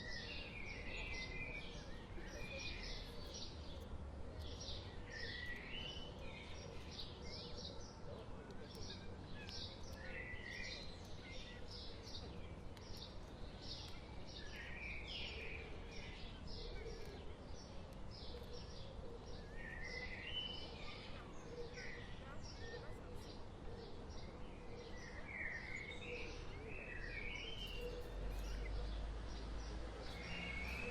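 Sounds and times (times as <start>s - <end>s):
small birds singing: 0.0s - 30.9s.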